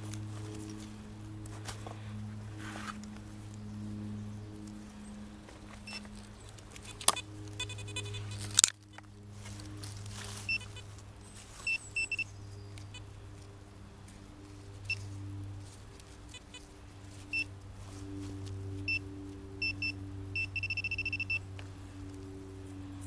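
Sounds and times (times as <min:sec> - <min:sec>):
steady hum: 0:00.0 - 0:23.0
pinpointer short high beeps: 0:10.5 - 0:10.7, 0:11.7 - 0:12.2, 0:19.6 - 0:21.4
metal detector warbling tones: 0:19.6 - 0:21.4.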